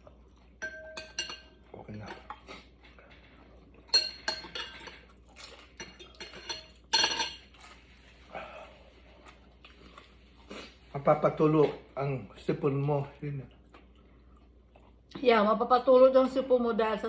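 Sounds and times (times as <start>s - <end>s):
utensils clinking on a bowl: 0.6s - 7.6s.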